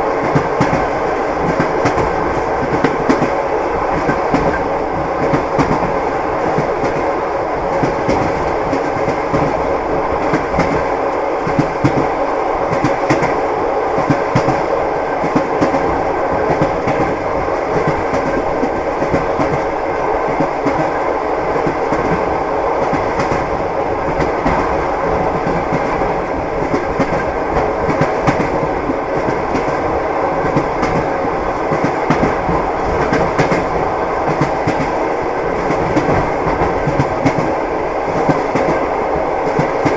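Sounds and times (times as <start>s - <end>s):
train wheels clacking over rail joints: 21.6s - 38.8s.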